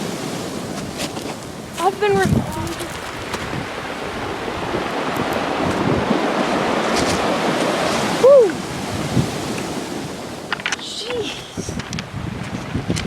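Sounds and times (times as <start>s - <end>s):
ocean waves breaking: 0.0s - 13.0s
person whooping shout: 8.2s - 8.6s.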